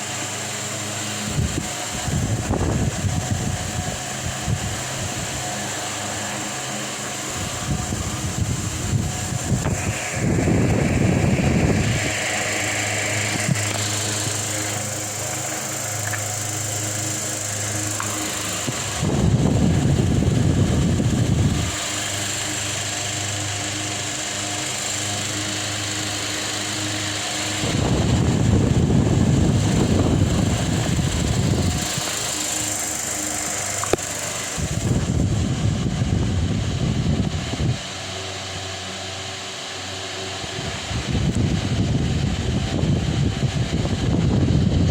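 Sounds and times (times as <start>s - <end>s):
airflow buffeting microphone: 0.0s - 44.9s
fan motor hum: 0.0s - 44.9s.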